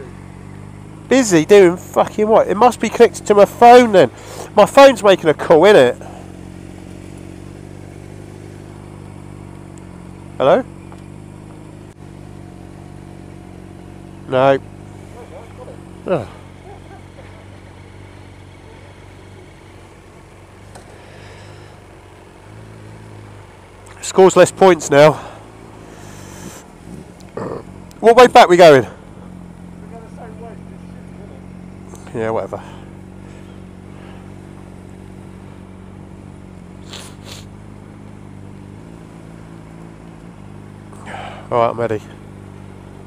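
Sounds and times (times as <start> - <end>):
motorcycle engine idling: 0.0 - 43.0
brief hisses: 36.8 - 37.6.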